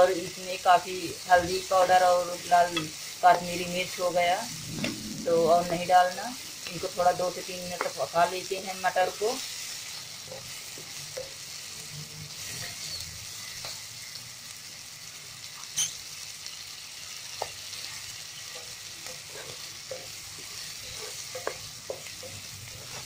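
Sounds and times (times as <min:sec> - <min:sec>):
peas sizzling in a pan: 0:00.0 - 0:23.0
spatula scraping and tapping: 0:18.6 - 0:23.0.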